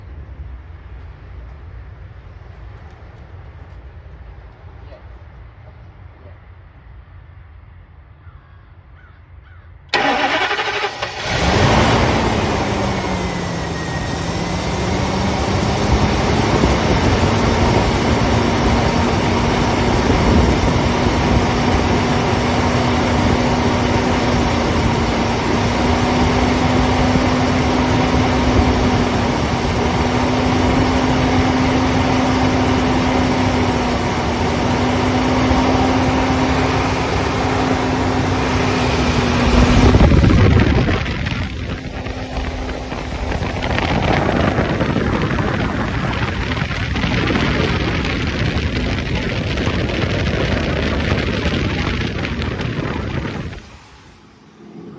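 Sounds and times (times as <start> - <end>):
engine cranking by starter motor: 9.9 - 17.5, 19.6 - 53.6.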